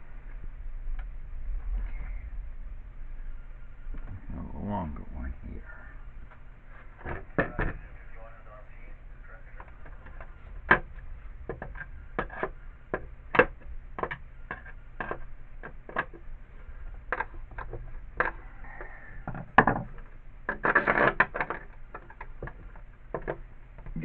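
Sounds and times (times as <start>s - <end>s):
small hardware clicking and knocking: 9.6s - 16.3s, 17.0s - 24.0s
hardware clatter: 9.6s - 24.0s.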